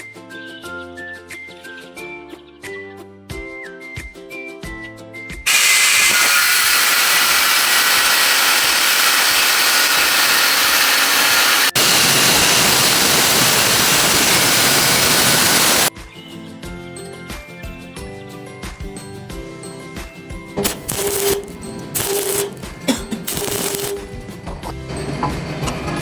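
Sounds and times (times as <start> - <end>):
harsh metalworking noise: 5.5 - 15.9, 20.6 - 26.0
background music: 15.9 - 26.0.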